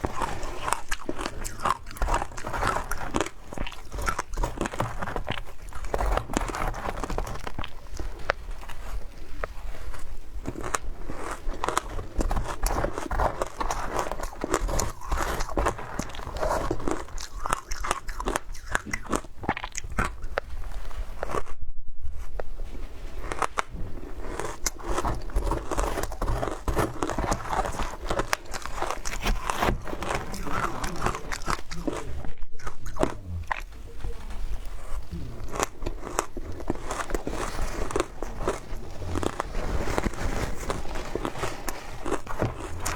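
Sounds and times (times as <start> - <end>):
ice crunching while chewed: 0.0 - 21.6, 22.3 - 42.9.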